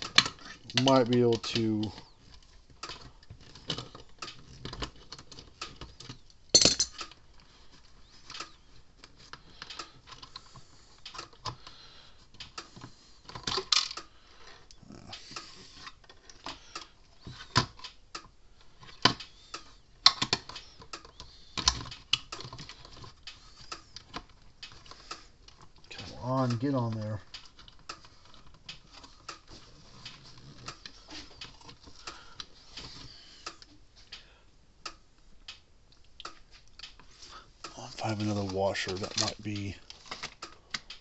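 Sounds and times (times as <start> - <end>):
metal hardware and tools clattering: 6.5 - 7.2.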